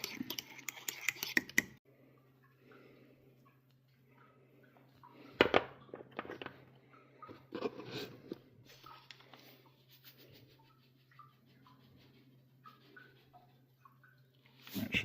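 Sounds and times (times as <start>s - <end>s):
utensil scraping and knocking bowl: 0.0s - 1.8s.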